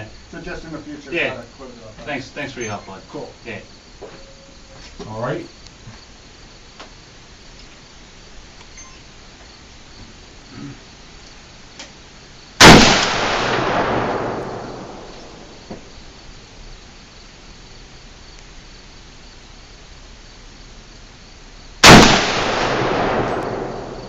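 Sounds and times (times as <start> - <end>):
crickets chirping: 0.0 - 24.0
gunshots with long echo: 12.6 - 16.0, 21.8 - 24.0.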